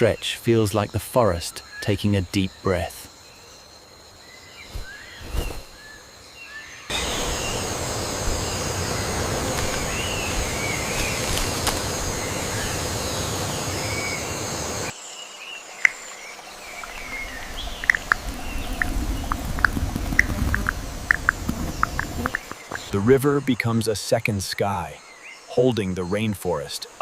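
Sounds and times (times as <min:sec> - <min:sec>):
birds chirping: 0:00.0 - 0:27.0
loud steady rushing noise: 0:06.9 - 0:14.9.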